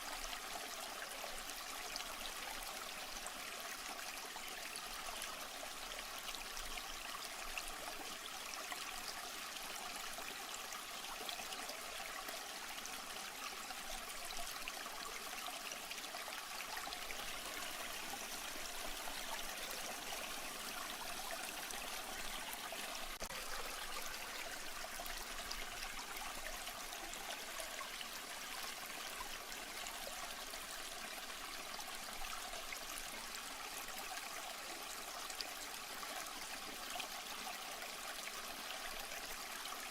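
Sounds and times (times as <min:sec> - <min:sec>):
water trickling: 0:13.4 - 0:29.8.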